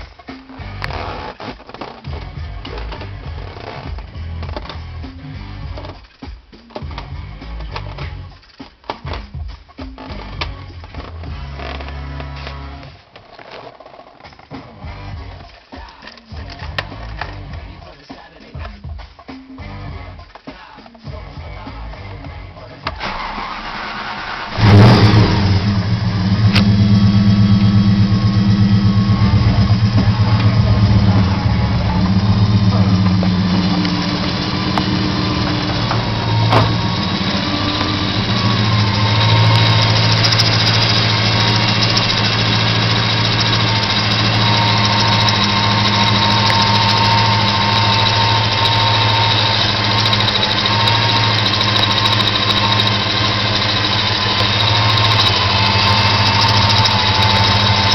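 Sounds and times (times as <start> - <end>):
car engine starting and idling: 22.9 - 57.9.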